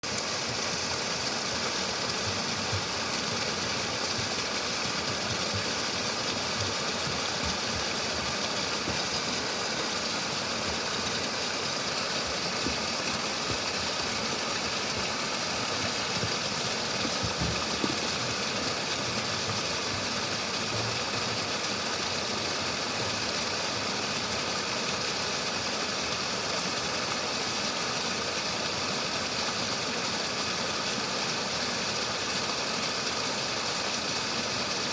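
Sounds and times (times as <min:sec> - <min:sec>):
water flowing: 0:00.0 - 0:34.9.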